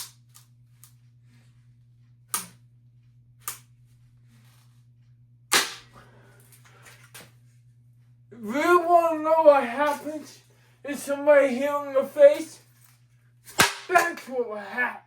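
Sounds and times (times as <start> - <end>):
faint steady hum: 0.0 - 15.0
sharp blows smashing ceiling fan: 5.5 - 6.1, 13.5 - 14.5.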